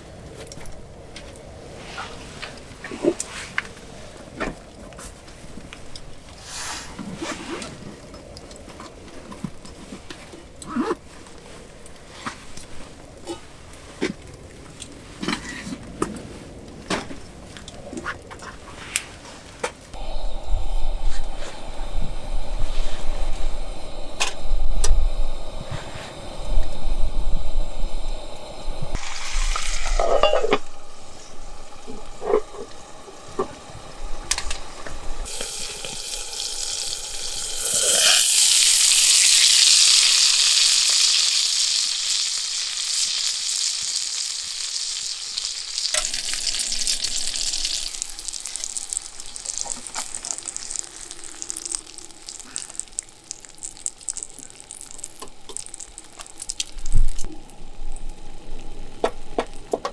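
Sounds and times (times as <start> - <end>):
low rumbling: 20.0 - 37.7
food sizzling on hot metal: 20.0 - 59.8.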